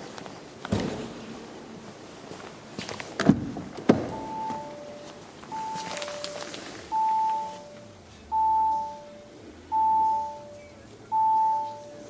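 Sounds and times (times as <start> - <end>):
car warning chime: 4.1 - 12.0.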